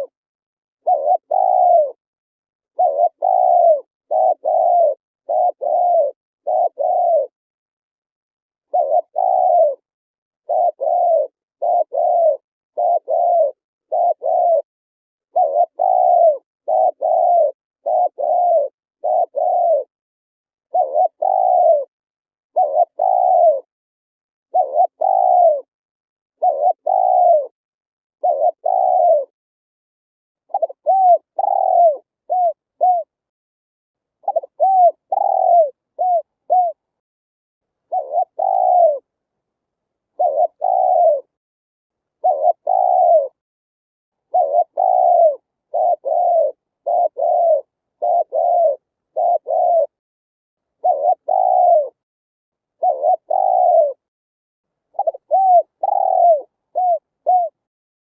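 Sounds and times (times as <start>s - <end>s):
dove cooing: 0.8s - 2.0s, 2.7s - 7.4s, 8.7s - 14.7s, 15.3s - 19.9s, 20.7s - 21.9s, 22.5s - 23.7s, 24.5s - 25.7s, 26.4s - 27.6s, 28.2s - 29.4s, 30.5s - 33.2s, 34.2s - 36.9s, 37.8s - 39.1s, 40.0s - 41.4s, 42.2s - 43.4s, 44.2s - 50.0s, 50.7s - 52.0s, 52.7s - 54.1s, 54.9s - 57.7s.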